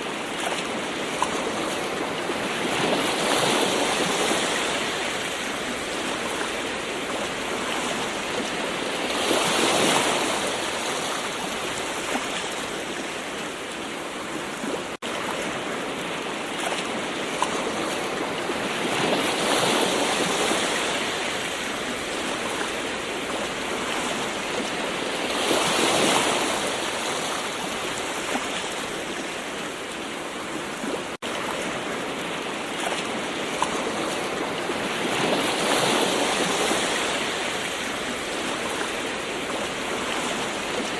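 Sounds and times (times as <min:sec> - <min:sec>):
ocean waves washing in: 0:00.0 - 0:40.9.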